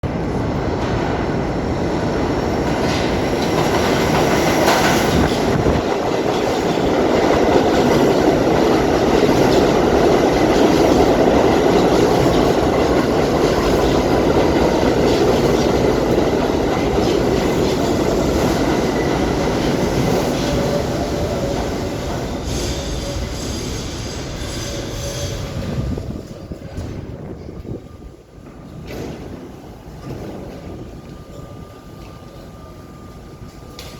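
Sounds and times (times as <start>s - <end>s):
subway train wheels clattering: 0.0s - 33.9s
high-pitched brake squealing: 20.4s - 26.8s.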